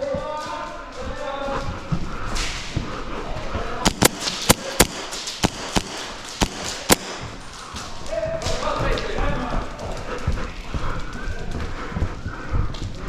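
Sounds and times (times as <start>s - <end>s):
steady background noise: 0.0s - 13.0s
airsoft gun shots: 3.9s - 7.5s.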